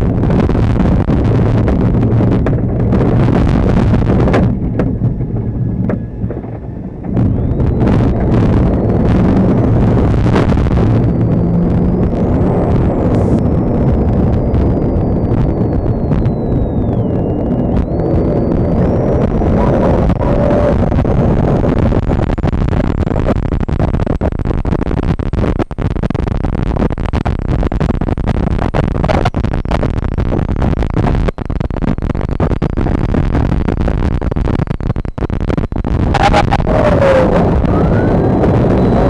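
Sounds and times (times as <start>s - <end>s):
vehicle rumble: 0.0s - 39.0s
knocks and clicks: 2.3s - 8.4s.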